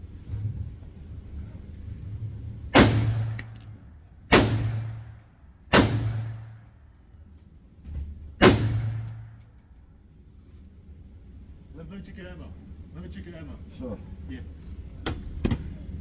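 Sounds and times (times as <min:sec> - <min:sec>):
rifle gunshots echoing: 0:02.7 - 0:03.6, 0:04.3 - 0:05.1, 0:05.7 - 0:06.5, 0:08.4 - 0:09.2.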